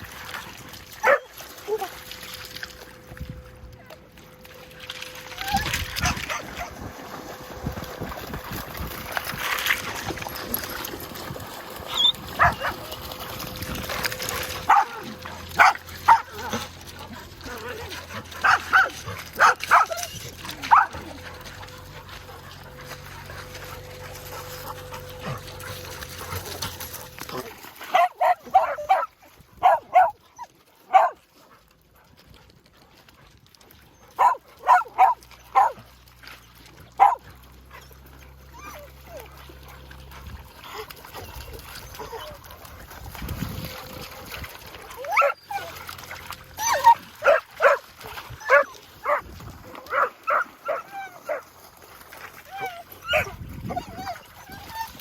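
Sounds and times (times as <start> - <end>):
dog barking: 1.0 - 1.3, 12.4 - 12.8, 14.6 - 16.3, 18.4 - 19.9, 27.9 - 30.2, 30.9 - 31.2, 34.2 - 35.8, 37.0 - 37.2, 46.7 - 47.8, 48.5 - 49.2
dogs yelping: 1.0 - 1.8, 5.2 - 6.9, 10.3 - 31.2, 33.9 - 35.8, 36.4 - 42.6, 44.9 - 51.6, 52.2 - 55.0.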